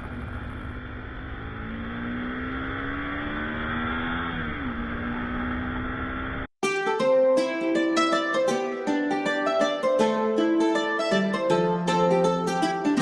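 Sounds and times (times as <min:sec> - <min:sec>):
motorcycle engine accelerating: 0:00.0 - 0:06.5
road and wind noise: 0:00.0 - 0:06.5.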